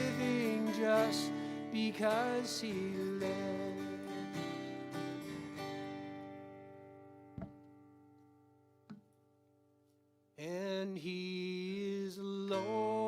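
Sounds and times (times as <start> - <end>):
short knocks: 7.4 - 7.6.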